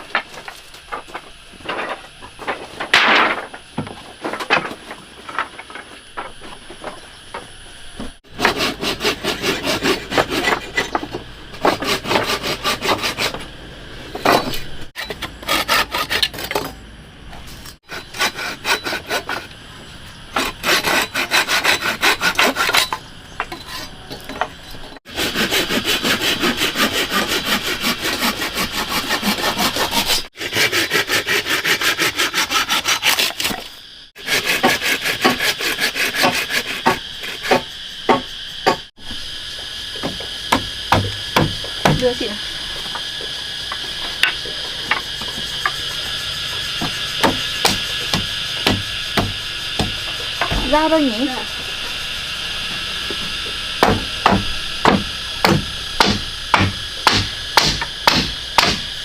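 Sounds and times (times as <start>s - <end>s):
hand saw cutting wood: 8.3s - 13.5s, 14.2s - 16.7s, 17.8s - 19.6s, 20.3s - 24.0s, 25.0s - 38.8s, 46.8s - 51.4s, 53.8s - 58.8s.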